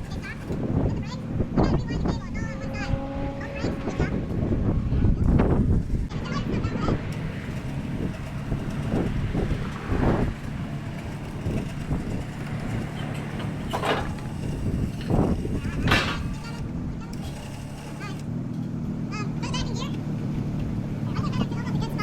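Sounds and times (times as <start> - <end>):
muffled engine idling: 0.0 - 22.0
sharp knocks and clanks: 7.0 - 16.6.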